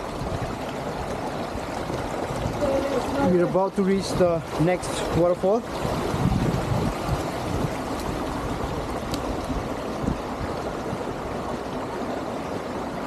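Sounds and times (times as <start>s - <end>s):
stream flowing over rocks: 0.0s - 13.0s.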